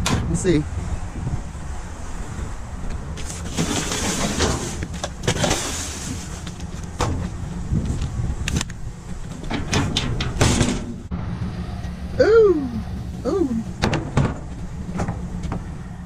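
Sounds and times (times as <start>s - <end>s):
rustling of junk: 3.2s - 11.1s
steady low rumble: 5.9s - 16.0s.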